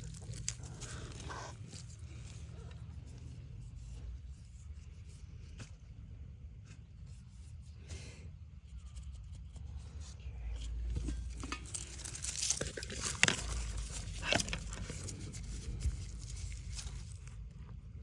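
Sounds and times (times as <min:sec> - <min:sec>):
rustling and crinkling handling: 0:00.0 - 0:08.0, 0:08.7 - 0:18.0
low rumble: 0:09.7 - 0:18.0.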